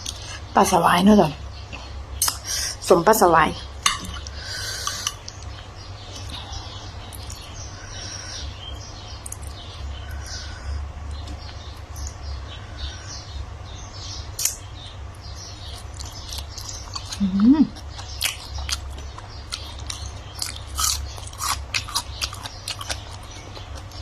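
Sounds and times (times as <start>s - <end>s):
low steady hum: 0.0s - 24.0s
small birds chirping: 0.0s - 24.0s.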